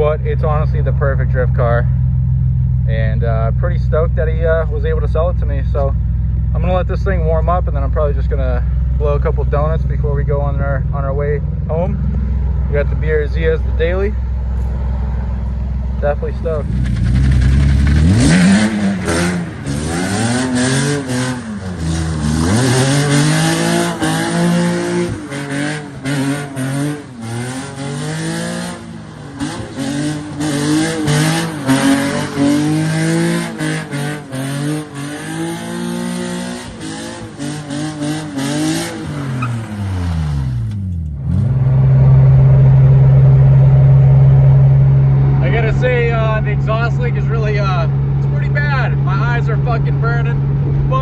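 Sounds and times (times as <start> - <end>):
car engine revving: 0.0 - 51.0.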